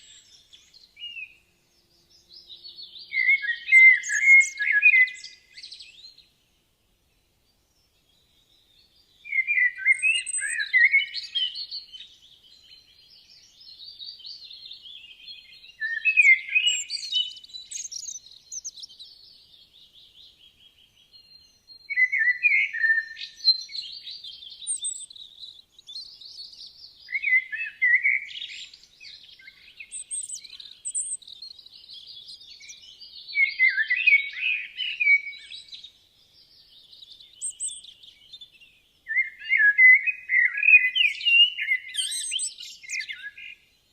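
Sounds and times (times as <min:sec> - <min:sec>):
faint bird twittering: 0:00.0 - 0:06.4, 0:07.7 - 0:43.9
loud songbird phrases: 0:00.0 - 0:43.9.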